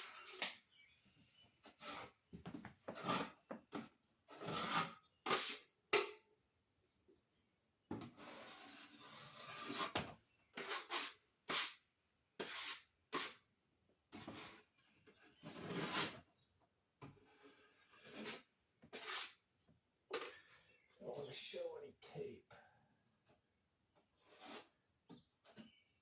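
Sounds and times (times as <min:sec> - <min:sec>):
drywall knife scraping compound: 0:01.6 - 0:02.2, 0:02.8 - 0:06.1, 0:08.0 - 0:13.5, 0:14.1 - 0:16.3, 0:17.2 - 0:19.5, 0:23.2 - 0:26.0.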